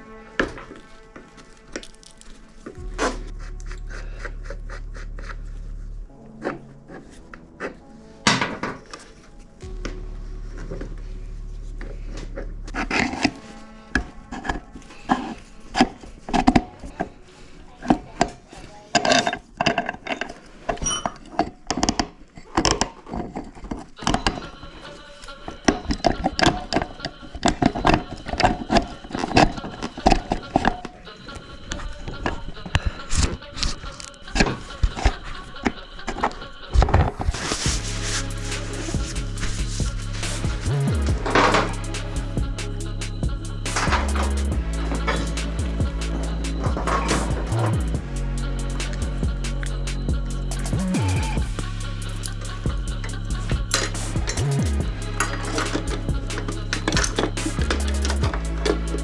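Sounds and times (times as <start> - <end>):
background music with bass: 2.8 - 6.4, 9.6 - 13.4, 37.2 - 59.0.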